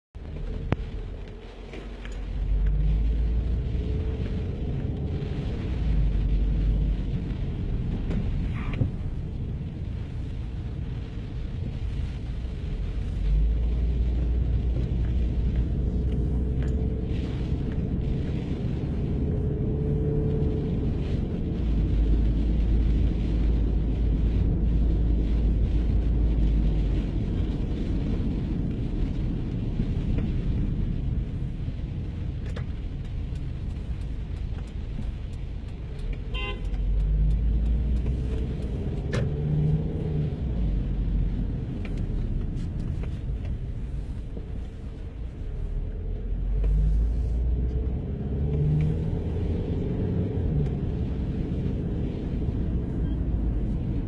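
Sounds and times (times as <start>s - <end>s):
cars passing: 0.2s - 54.0s.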